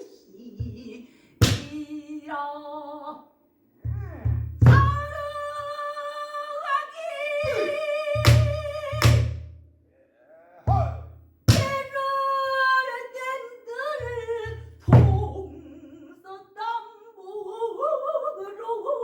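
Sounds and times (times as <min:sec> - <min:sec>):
woman singing long wavering lines: 0:04.0 - 0:09.2, 0:11.6 - 0:19.0.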